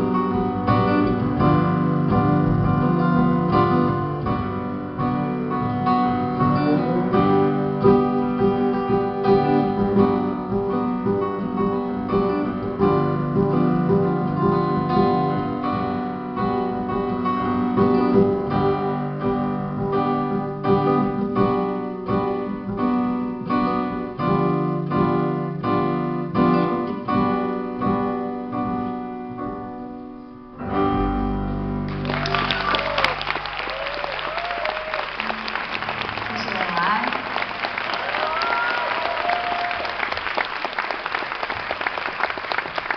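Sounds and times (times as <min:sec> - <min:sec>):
audience applause: 0:31.9 - 0:42.9.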